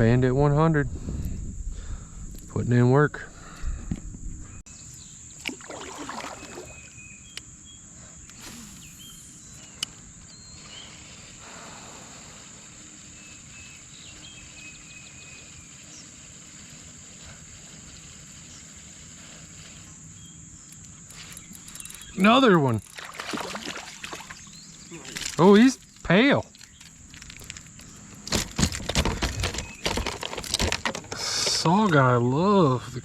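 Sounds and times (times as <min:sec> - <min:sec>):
constant high hiss: 0:00.0 - 0:33.0
splashy rustle: 0:05.4 - 0:06.9, 0:22.7 - 0:25.4.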